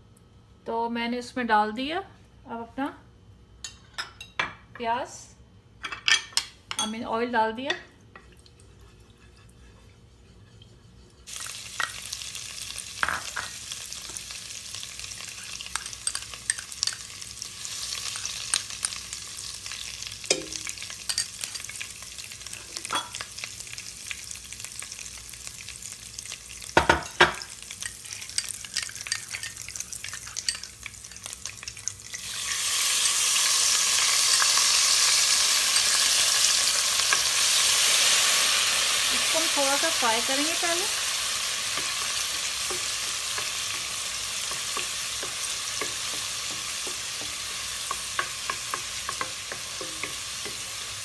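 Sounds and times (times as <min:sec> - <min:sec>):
onion paste sizzling in pan: 0:09.0 - 0:51.0
spoon knocking against pan: 0:20.3 - 0:20.8, 0:44.5 - 0:50.7.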